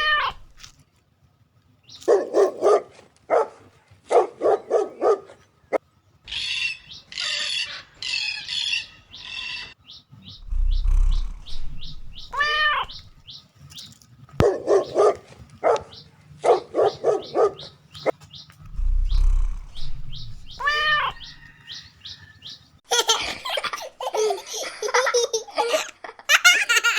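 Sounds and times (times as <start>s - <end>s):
pet birds chirping: 1.8s - 22.8s.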